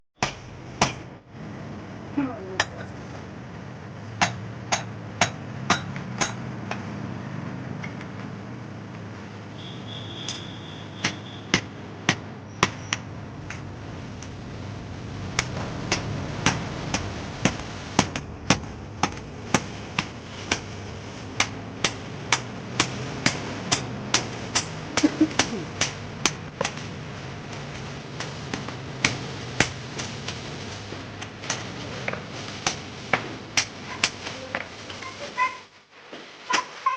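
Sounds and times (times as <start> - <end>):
hammer striking iron on anvil: 0.2 - 1.1, 4.2 - 6.8, 11.0 - 13.0.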